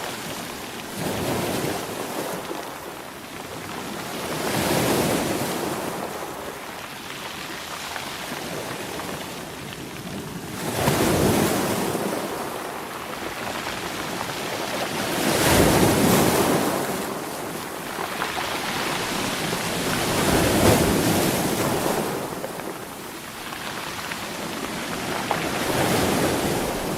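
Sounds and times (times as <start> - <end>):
surf washing: 0.0 - 26.9
sea waves breaking: 10.6 - 26.9.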